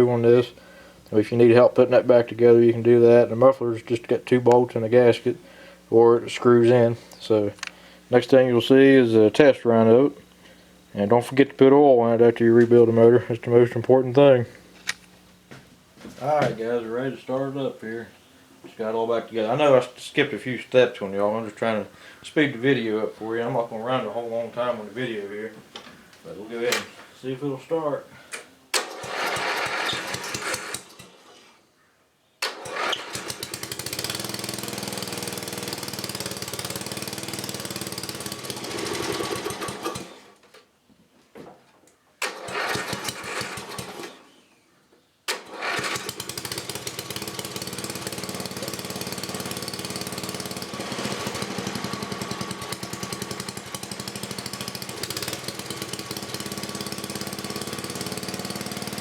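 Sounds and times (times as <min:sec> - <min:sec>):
small engine starting and running: 0:28.7 - 0:31.4, 0:32.4 - 0:40.4, 0:42.2 - 0:44.3, 0:45.3 - 0:59.0.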